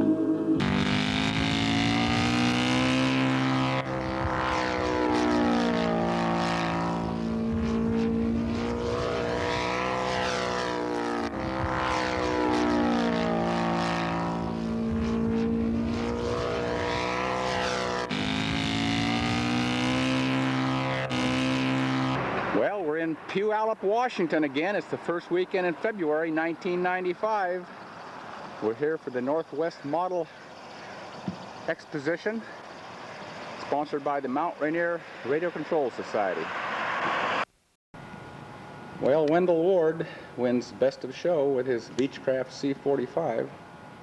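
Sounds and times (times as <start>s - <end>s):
model airplane propeller drone: 0.0s - 22.6s, 38.0s - 44.0s.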